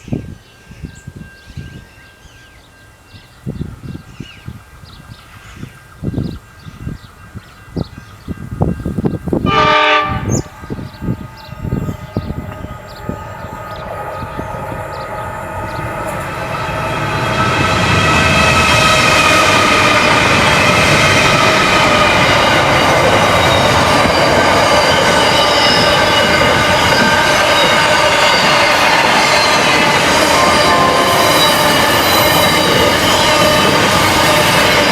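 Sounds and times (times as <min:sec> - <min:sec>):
freight train wagons rolling past: 0:00.0 - 0:34.9
high squealing wheels: 0:10.2 - 0:34.9.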